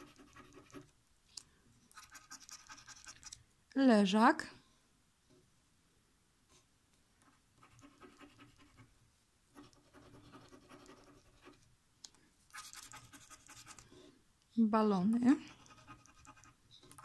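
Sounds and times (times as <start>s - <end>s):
scratching scratch card: 0.0s - 0.9s, 1.9s - 3.4s, 7.2s - 8.9s, 9.5s - 11.6s, 12.5s - 13.8s, 15.5s - 17.0s.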